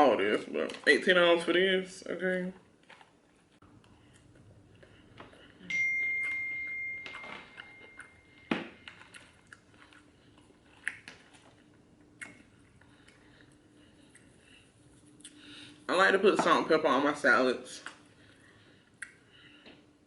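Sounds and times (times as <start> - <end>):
crunching of eating: 2.4 - 5.7, 7.5 - 15.8
clear ringing tone: 5.6 - 8.5.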